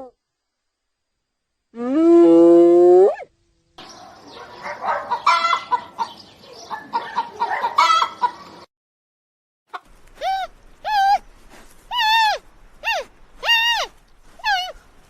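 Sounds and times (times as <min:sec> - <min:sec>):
hen clucking and cackling: 0:03.8 - 0:08.6
rooster crowing: 0:04.2 - 0:06.1, 0:06.9 - 0:08.4.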